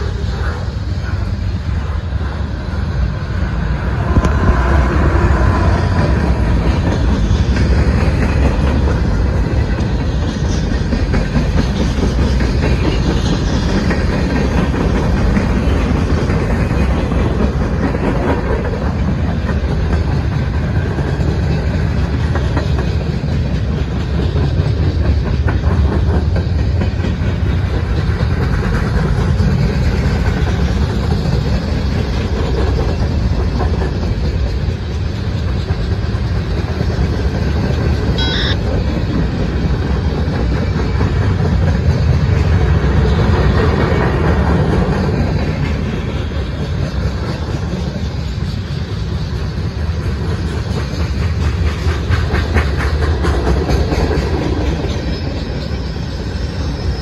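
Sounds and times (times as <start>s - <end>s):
freight train wheels rumbling: 0.0s - 57.0s
high squeak: 38.2s - 38.6s.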